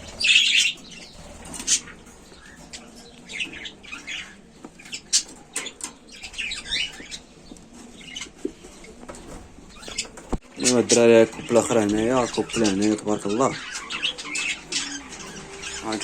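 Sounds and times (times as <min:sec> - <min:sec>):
small parrots chirping: 0:00.0 - 0:08.3, 0:09.7 - 0:10.8, 0:12.0 - 0:16.0
rustling: 0:00.0 - 0:11.0.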